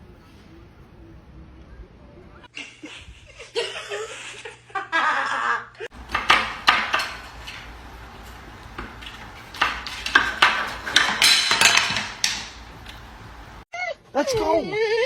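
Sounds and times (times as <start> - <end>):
hard objects knocking and clattering: 5.9 - 13.6.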